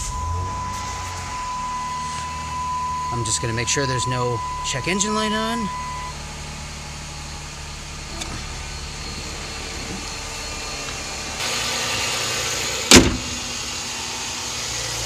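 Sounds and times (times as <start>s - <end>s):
car engine idling: 0.0s - 15.0s
sharp loud thump: 12.9s - 13.5s.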